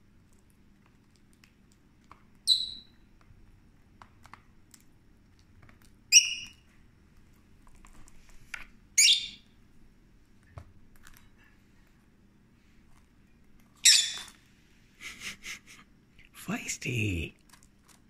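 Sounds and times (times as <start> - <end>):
parrot shrill calls: 2.5 - 2.9, 6.1 - 6.6, 9.0 - 9.4, 13.8 - 14.3.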